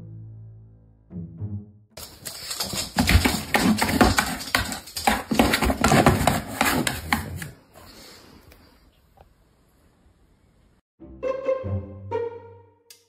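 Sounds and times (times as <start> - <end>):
dog claws scratching cardboard box: 2.0 - 7.6.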